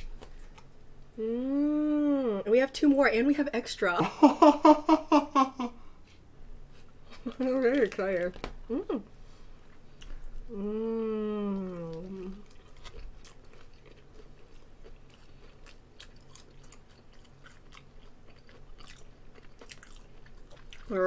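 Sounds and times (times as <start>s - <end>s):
soft chewing: 0.0s - 1.1s, 6.0s - 21.0s
person humming mmm: 1.2s - 2.5s, 8.7s - 9.1s, 10.4s - 12.5s.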